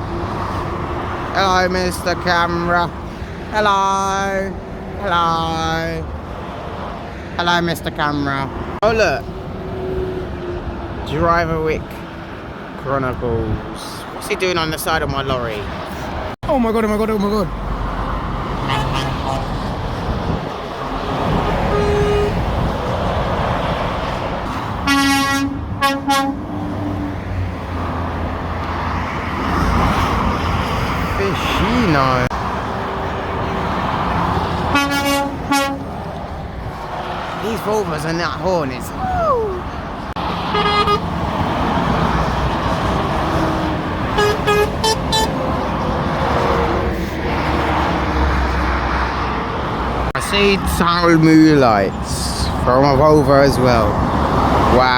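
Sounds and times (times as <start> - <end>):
motorway traffic noise: 0.0 - 54.9
lorry horn blasts: 21.5 - 22.5, 24.8 - 26.4, 34.7 - 35.9, 40.5 - 41.0, 43.5 - 45.4.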